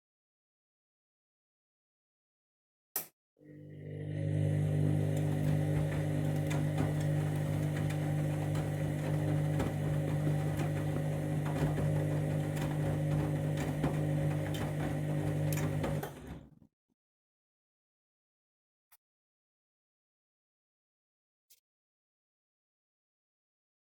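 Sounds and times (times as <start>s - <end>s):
washing machine motor humming: 3.4s - 16.5s.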